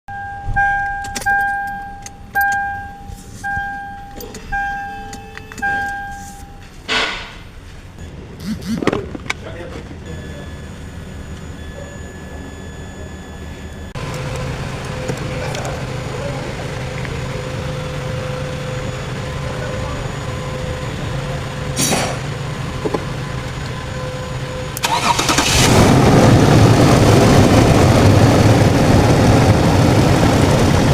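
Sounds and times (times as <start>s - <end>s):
car engine cranking and running: 0.1s - 6.6s, 8.0s - 30.9s
dashboard warning chime dinging: 0.1s - 6.9s, 9.6s - 15.8s, 22.6s - 25.4s
steady low hum: 0.1s - 24.8s.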